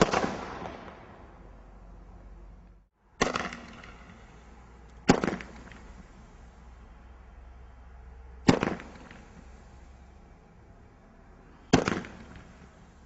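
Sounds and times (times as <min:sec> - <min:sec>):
fireworks bangs with rumbling echo: 0:00.0 - 0:01.4, 0:03.2 - 0:06.2, 0:08.4 - 0:09.5, 0:11.7 - 0:13.0.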